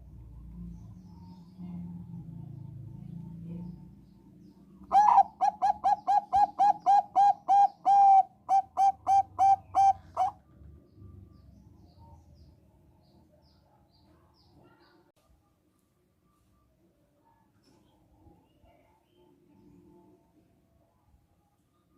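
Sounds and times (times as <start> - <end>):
dove cooing: 4.9 - 10.4.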